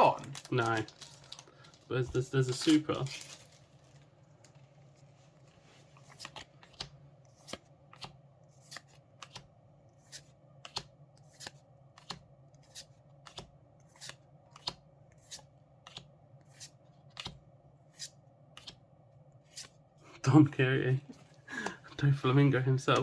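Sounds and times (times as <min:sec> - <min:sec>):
trading cards snapping: 0:10.6 - 0:16.1.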